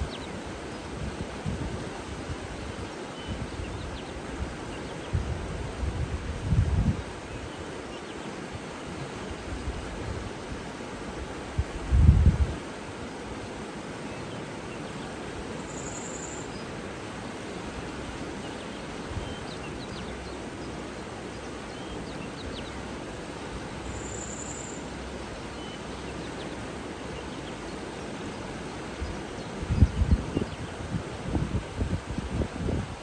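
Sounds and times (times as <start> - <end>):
faint bird chirps: 15.6 - 16.7, 23.8 - 24.9.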